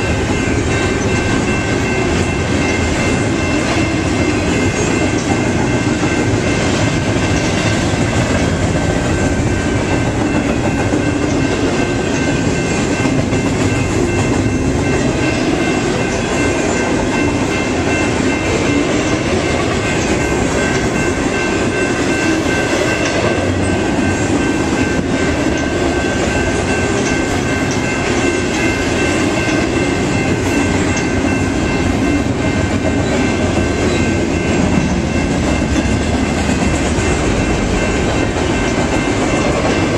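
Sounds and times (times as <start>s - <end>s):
high ringing tones: 0.0s - 39.9s
train wheels clattering on rails: 0.0s - 39.9s.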